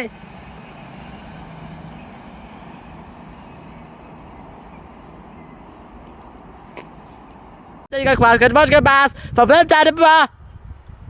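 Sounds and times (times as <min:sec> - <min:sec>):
diesel train rumbling past: 0:00.0 - 0:07.9.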